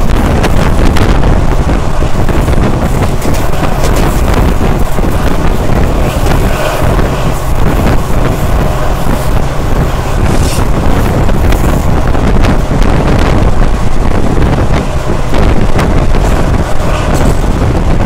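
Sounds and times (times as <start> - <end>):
train rumble: 0.0 - 18.0
wind buffeting microphone: 0.0 - 18.0
wheels clicking over rail joints: 1.9 - 12.6.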